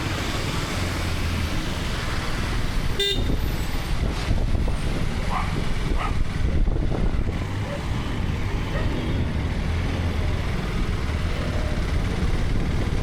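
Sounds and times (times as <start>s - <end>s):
wind and road noise: 0.0s - 13.0s
vehicle horn toot: 3.0s - 3.4s.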